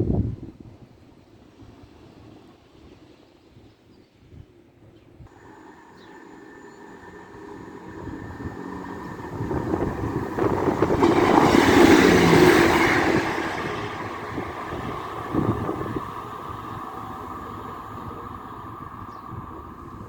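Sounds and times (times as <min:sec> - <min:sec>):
train passing: 0:05.3 - 0:20.0.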